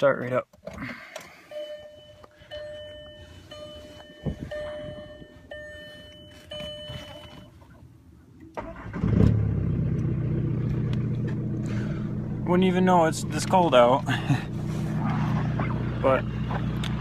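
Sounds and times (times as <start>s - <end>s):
dashboard warning chime: 1.5s - 7.7s
diesel engine cranking: 8.4s - 17.0s
diesel engine idling: 8.6s - 17.0s.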